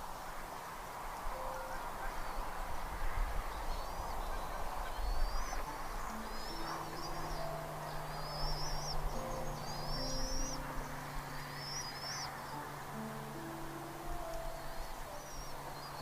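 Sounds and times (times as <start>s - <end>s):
soft background music: 0.3s - 16.0s
bird high thin calls: 3.6s - 12.7s.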